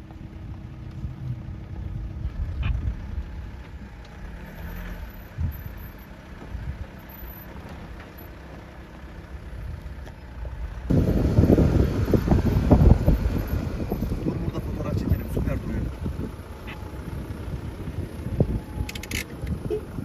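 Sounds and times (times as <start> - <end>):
vehicle engine rumbling: 0.0 - 20.0
wind buffeting microphone: 10.9 - 20.0.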